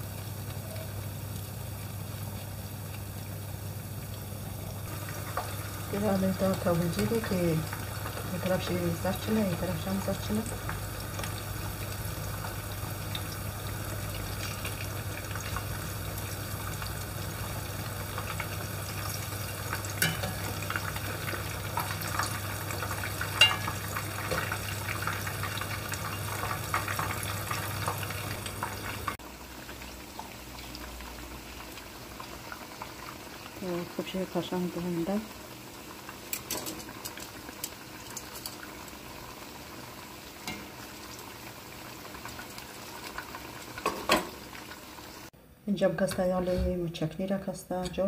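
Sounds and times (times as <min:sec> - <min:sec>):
low steady hum: 0:00.0 - 0:26.8
food sizzling in hot oil: 0:00.0 - 0:45.4.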